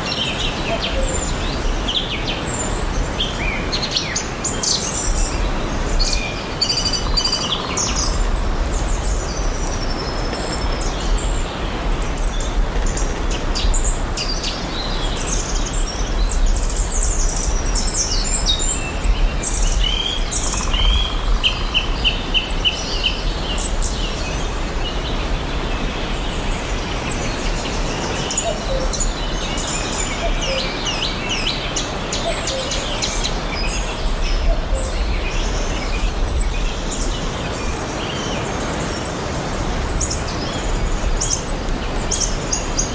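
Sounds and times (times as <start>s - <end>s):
rushing background hiss: 0.0s - 42.9s.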